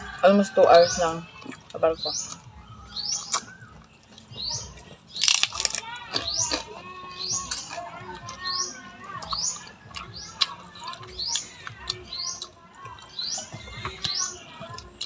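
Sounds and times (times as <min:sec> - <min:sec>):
bird chirping: 0:00.0 - 0:15.0
faint other bird notes: 0:00.0 - 0:15.0.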